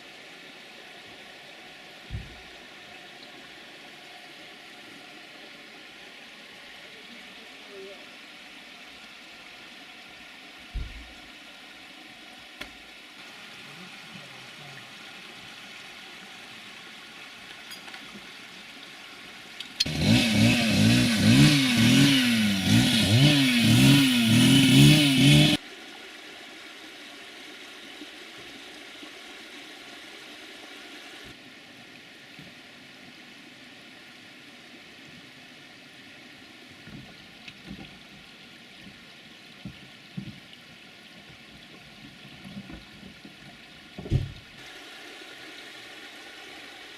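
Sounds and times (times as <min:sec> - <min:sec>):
tractor engine revving: 0:19.8 - 0:25.6.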